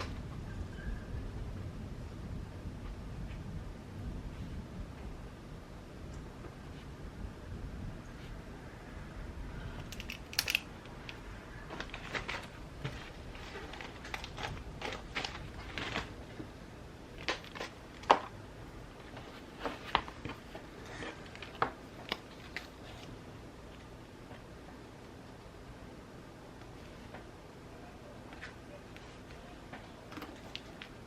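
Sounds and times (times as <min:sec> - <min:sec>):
paper rustling: 0:11.6 - 0:16.5, 0:19.0 - 0:23.2.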